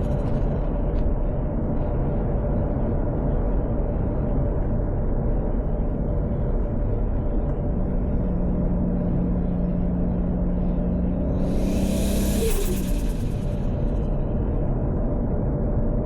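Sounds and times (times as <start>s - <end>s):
road rumble: 5.7s - 16.0s
car engine droning: 7.1s - 15.2s.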